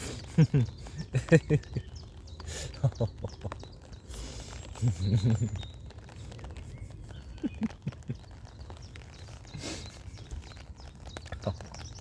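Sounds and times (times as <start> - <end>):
man laughing softly: 0.0 - 3.6, 4.4 - 8.4, 9.5 - 10.3.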